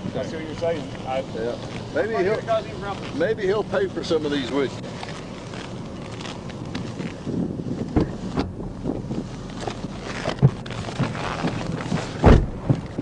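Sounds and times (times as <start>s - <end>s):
wind buffeting microphone: 5.8s - 13.0s
loud thump: 10.4s - 13.0s.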